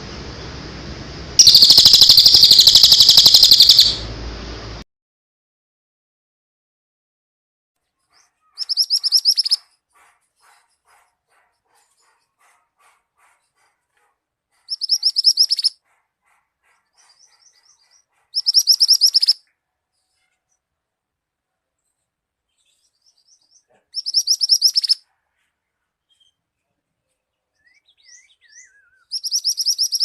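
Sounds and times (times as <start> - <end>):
faint bird chips: 1.4 - 4.0, 8.0 - 9.7, 14.6 - 15.7, 22.5 - 26.4, 27.6 - 30.0
songbird fast high trills: 1.4 - 4.1, 8.6 - 9.6, 14.7 - 15.7, 18.4 - 19.4, 24.0 - 25.0, 28.0 - 30.0.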